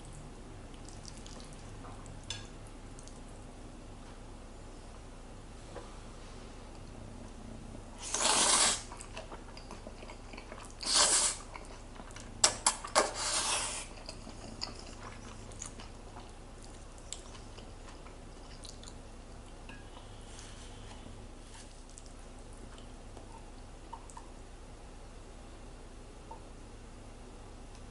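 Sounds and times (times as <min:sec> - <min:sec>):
person eating noodles noisily: 0:08.0 - 0:19.0.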